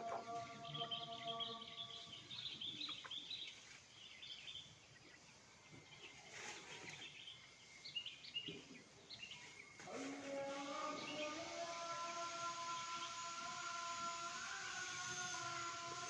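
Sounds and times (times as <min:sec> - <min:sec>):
faint bird chirps: 0:00.0 - 0:09.8.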